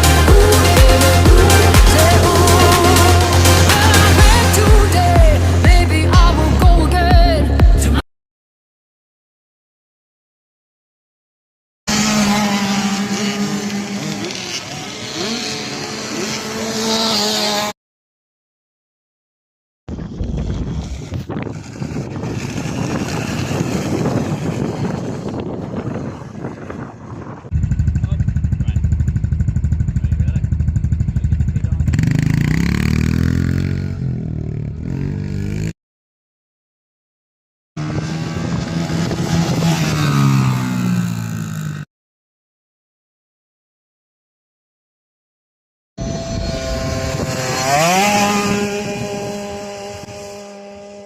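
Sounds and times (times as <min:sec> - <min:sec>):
motorbike engines revving: 0:00.0 - 0:08.0, 0:11.9 - 0:17.8, 0:19.9 - 0:35.8, 0:37.8 - 0:41.9, 0:46.0 - 0:51.0.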